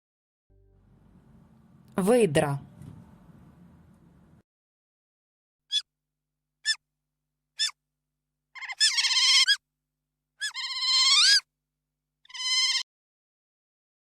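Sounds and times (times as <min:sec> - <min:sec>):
otter chirping: 0:08.6 - 0:09.6, 0:10.4 - 0:11.4.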